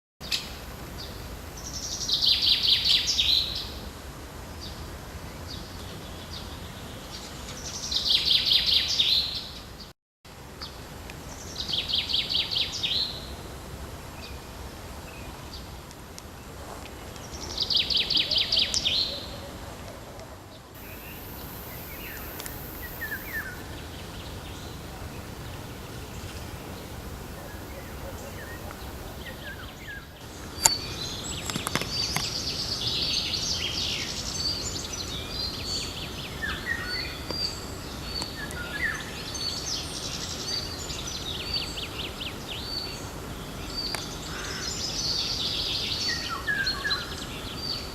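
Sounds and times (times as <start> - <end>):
low background noise: 0.2 - 47.9
songbird trilling: 20.8 - 23.6
faint bird calls: 43.9 - 45.4.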